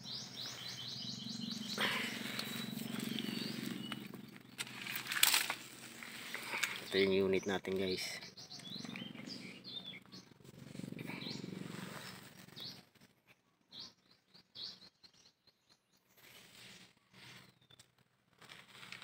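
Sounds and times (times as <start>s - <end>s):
small birds chirping: 0.0s - 18.0s
rustling of handling: 2.0s - 7.0s.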